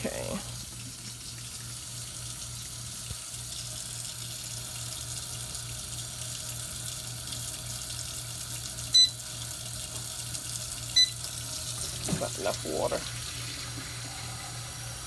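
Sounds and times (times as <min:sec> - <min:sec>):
water running from a tap: 0:00.0 - 0:15.0
short electronic beep: 0:09.0 - 0:09.2.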